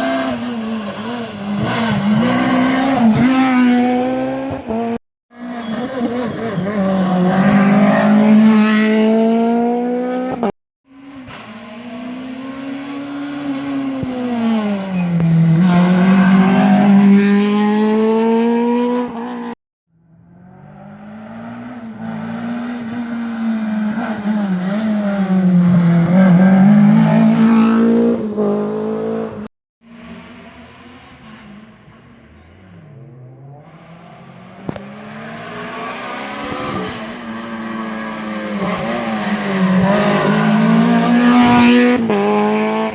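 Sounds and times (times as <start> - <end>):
rally car engine at full throttle: 0.0 - 42.9.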